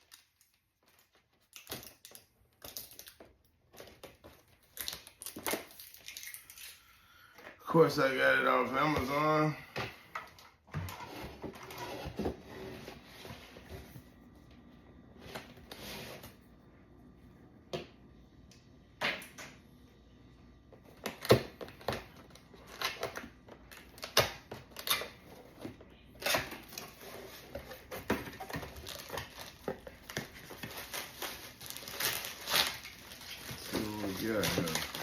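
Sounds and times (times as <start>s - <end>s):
packaging rustling and tearing: 0.0s - 6.9s, 21.0s - 35.0s.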